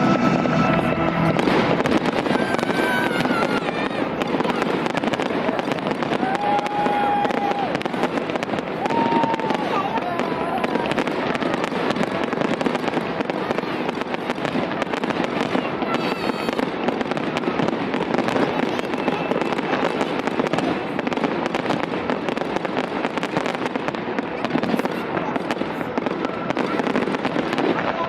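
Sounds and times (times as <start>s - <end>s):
fireworks crackling: 0.0s - 28.0s.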